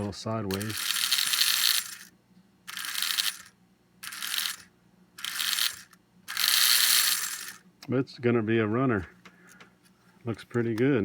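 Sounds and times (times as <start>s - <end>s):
toy train motor whirring: 0.0s - 2.1s, 2.7s - 7.6s.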